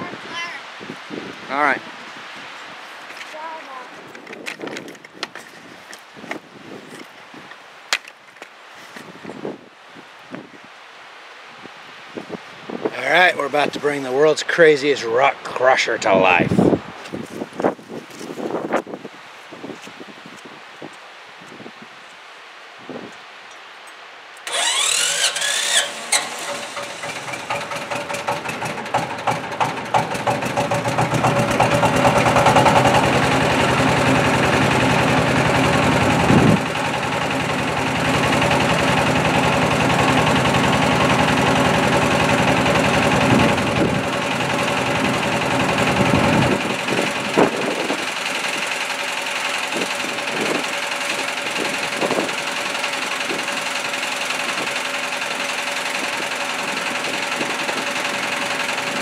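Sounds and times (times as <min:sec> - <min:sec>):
engine starting and running: 0:24.4 - 0:59.0.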